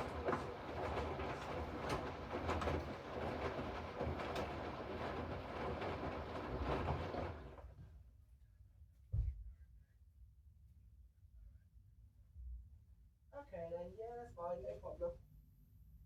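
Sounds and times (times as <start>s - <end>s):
washing machine rumble: 0.0s - 8.0s.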